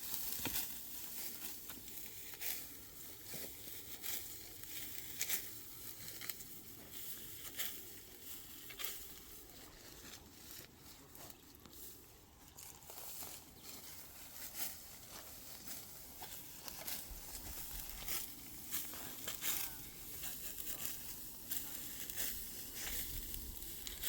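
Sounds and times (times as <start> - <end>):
dry crackling and rustling: 0.0 - 24.0.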